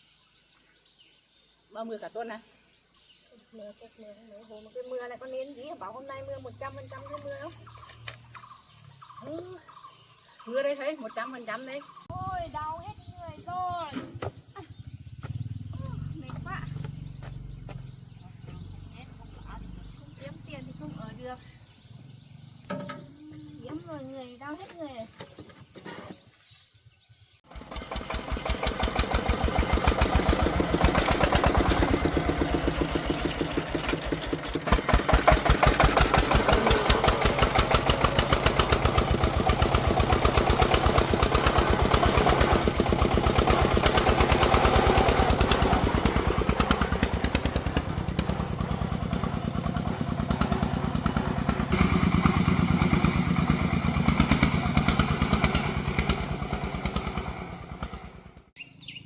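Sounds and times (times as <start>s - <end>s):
engine starting and chugging: 27.4s - 58.6s.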